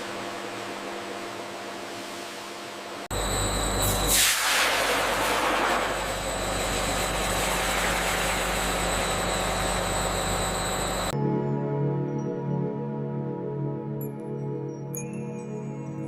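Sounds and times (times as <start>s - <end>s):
factory machinery hissing: 0.0s - 11.2s
thin high whine: 0.0s - 11.2s
low hum: 3.1s - 11.2s.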